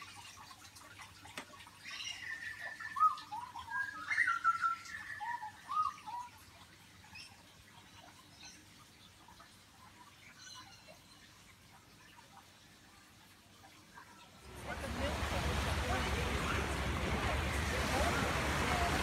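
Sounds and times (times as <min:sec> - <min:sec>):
bird warbling call: 0:01.8 - 0:06.4.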